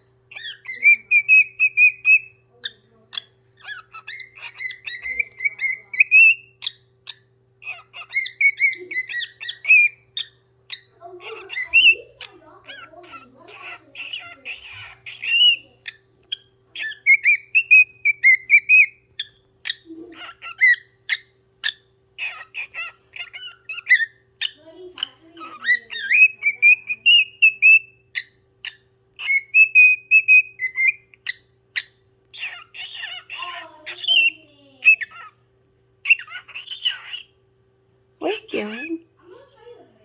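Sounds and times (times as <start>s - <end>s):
parrot whistling: 0.3s - 2.4s, 3.6s - 12.8s, 14.0s - 15.7s, 16.3s - 24.6s, 25.4s - 35.3s.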